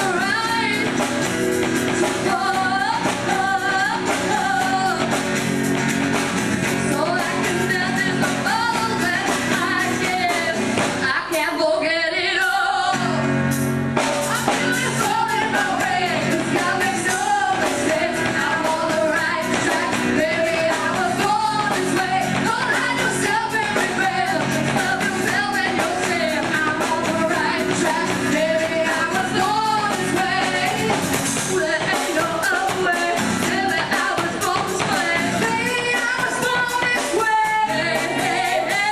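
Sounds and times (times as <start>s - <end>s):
women singing: 0.0s - 13.4s, 14.0s - 38.9s
pop-rock band with drum kit: 0.0s - 38.9s.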